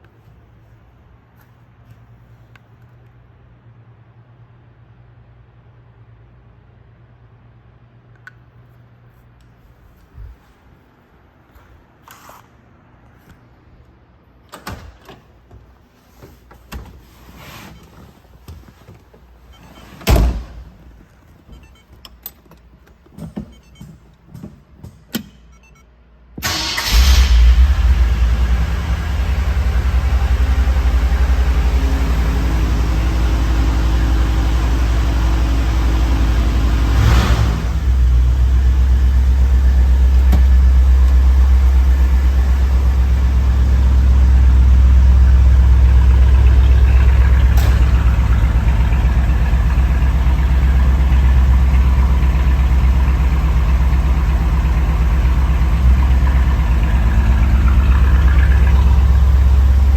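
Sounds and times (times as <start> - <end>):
car engine idling: 26.4 - 59.9.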